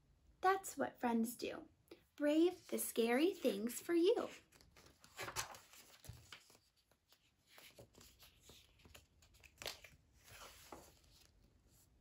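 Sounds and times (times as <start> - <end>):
book page turning: 4.3 - 12.0.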